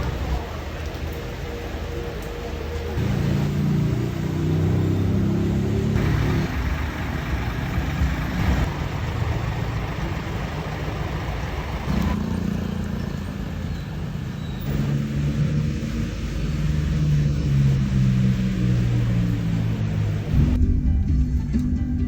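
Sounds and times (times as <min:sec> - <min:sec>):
bus diesel engine running: 0:00.0 - 0:22.0.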